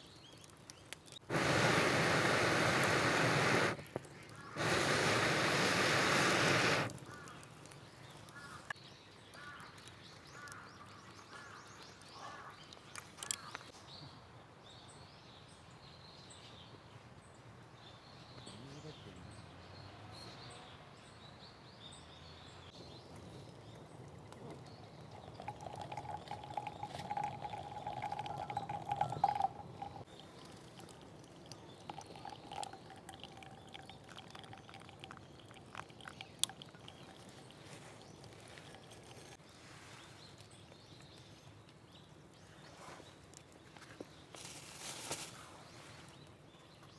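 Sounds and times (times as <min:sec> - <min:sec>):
faint outdoor ambience: 0:00.0 - 0:46.9
birds calling: 0:01.3 - 0:08.7, 0:23.7 - 0:30.4.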